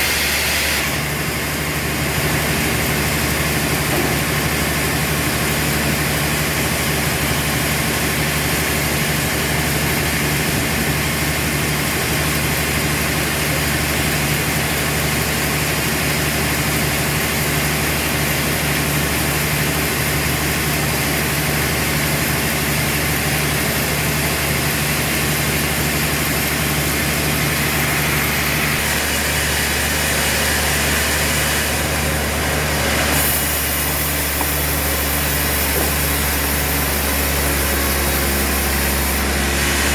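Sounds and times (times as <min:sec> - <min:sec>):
low motor hum: 0:16.4 - 0:39.9.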